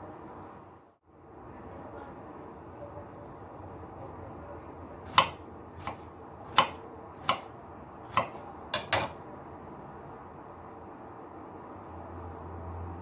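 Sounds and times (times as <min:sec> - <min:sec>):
kitchenware clinking and knocking: 0:08.1 - 0:09.2.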